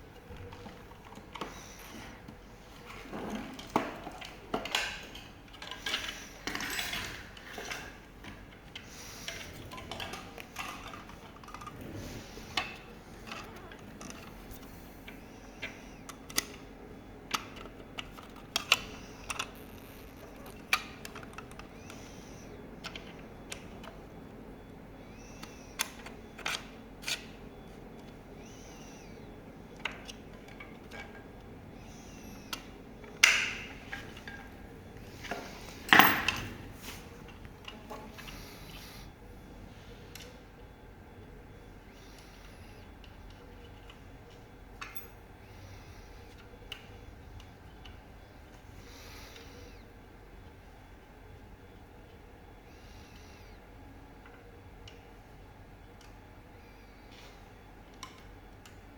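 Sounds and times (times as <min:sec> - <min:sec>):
faint steady hum: 0:00.0 - 0:58.9
tools and parts clicking: 0:03.3 - 0:11.8, 0:17.3 - 0:22.0, 0:25.4 - 0:27.3, 0:35.2 - 0:36.6, 0:44.8 - 0:45.2.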